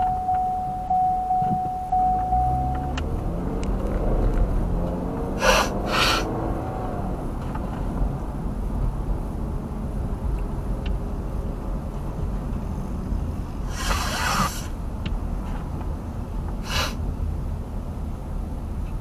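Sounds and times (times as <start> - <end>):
road and engine rumble: 0.0 - 19.0
person sniffing: 5.4 - 6.3, 13.7 - 14.7, 16.6 - 17.0.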